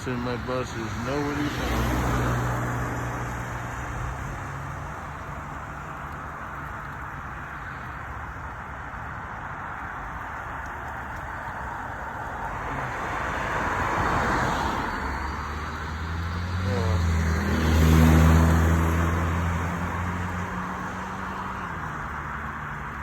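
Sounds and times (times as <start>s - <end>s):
large vehicle engine humming: 0.0s - 7.5s, 14.6s - 23.0s
tyre and road noise: 0.0s - 23.0s.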